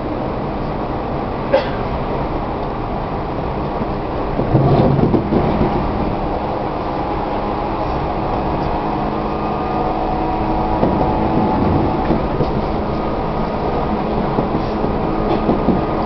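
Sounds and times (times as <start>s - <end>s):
electric train running: 2.5s - 16.0s.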